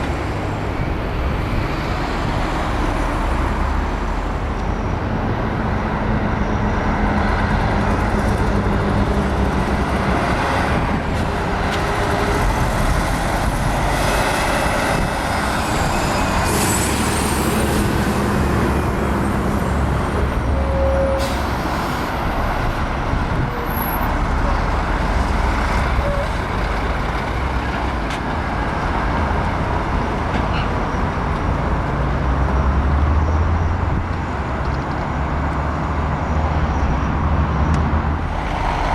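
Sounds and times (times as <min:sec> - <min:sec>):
diesel trucks passing: 0:00.0 - 0:38.9.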